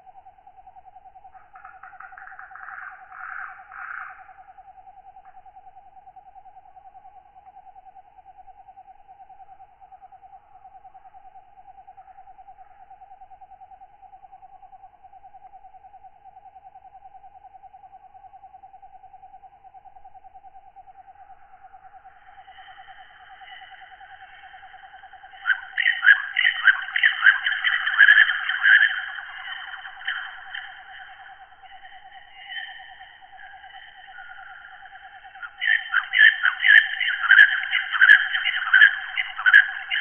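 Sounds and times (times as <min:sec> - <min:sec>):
insect trill pulsing: 0:00.0 - 0:40.0
raspy katydid calls: 0:01.6 - 0:04.2, 0:22.2 - 0:40.0.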